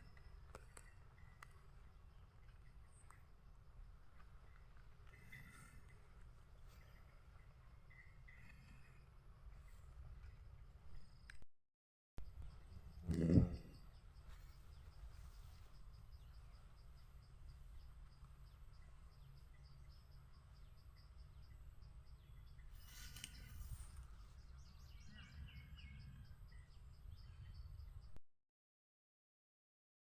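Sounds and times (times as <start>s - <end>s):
insect chirping: 12.2s - 28.1s
rustle: 14.2s - 18.5s, 22.7s - 24.4s.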